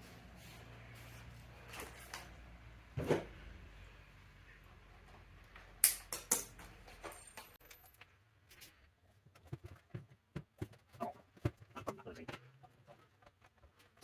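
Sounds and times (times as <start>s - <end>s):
bike parts and tools clicking: 5.6s - 8.0s.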